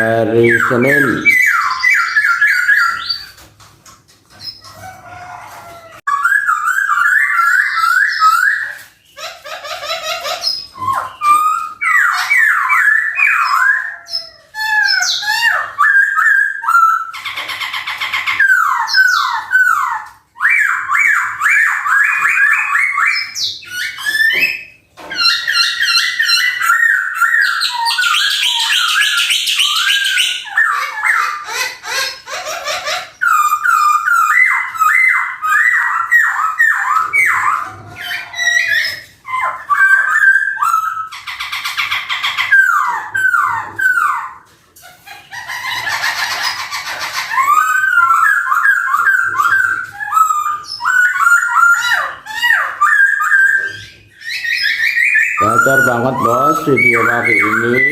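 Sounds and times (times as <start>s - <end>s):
bird singing whistled notes: 52.8s - 57.9s.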